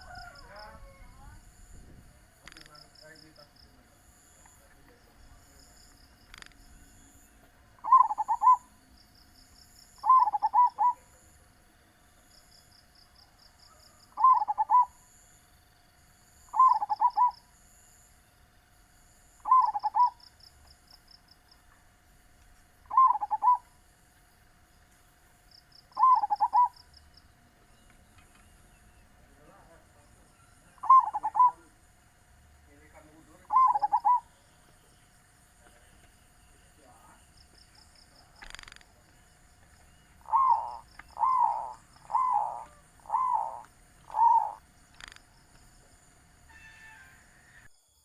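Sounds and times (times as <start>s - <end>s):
dove cooing: 0.0s - 1.4s, 7.8s - 8.8s, 10.0s - 11.3s, 13.7s - 15.0s, 16.5s - 17.4s, 19.4s - 20.2s, 22.9s - 23.7s, 25.9s - 26.8s, 30.6s - 31.8s, 33.0s - 34.4s, 40.1s - 45.2s
faint steady hum: 0.0s - 48.0s
high-pitched chirping: 7.8s - 8.7s, 10.0s - 11.0s, 14.2s - 15.0s, 16.5s - 17.4s, 19.4s - 20.2s, 22.9s - 23.7s, 26.0s - 26.8s, 30.8s - 31.7s, 33.5s - 34.3s, 40.2s - 45.2s.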